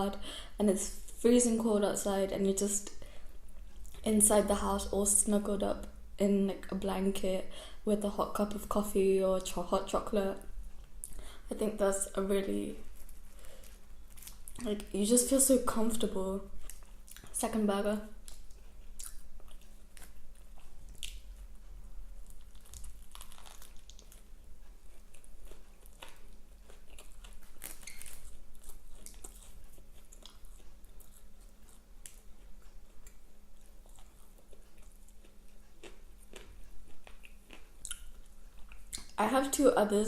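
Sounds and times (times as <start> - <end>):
person chewing a burger: 12.8 - 14.6, 18.2 - 39.1.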